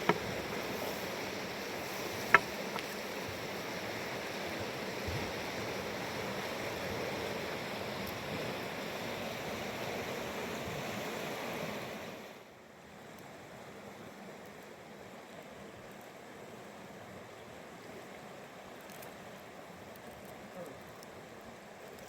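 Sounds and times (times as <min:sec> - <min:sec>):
river water rushing: 0:00.0 - 0:12.4.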